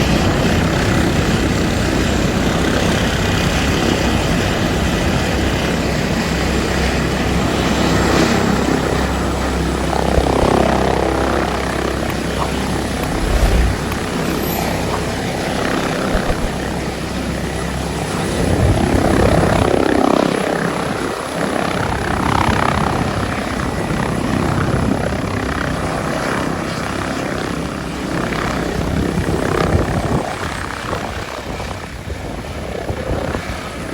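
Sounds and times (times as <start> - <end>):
helicopter rotor beating: 7.6 - 24.6
turbine and rotor-wash noise: 9.9 - 16.9.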